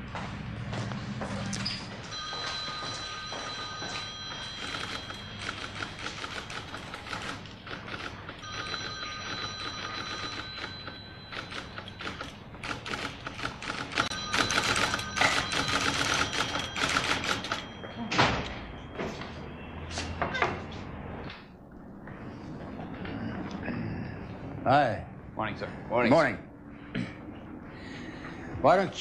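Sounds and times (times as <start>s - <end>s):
telephone ringing: 2.1s - 19.7s
typewriter keys clattering: 4.6s - 10.7s, 11.3s - 17.6s.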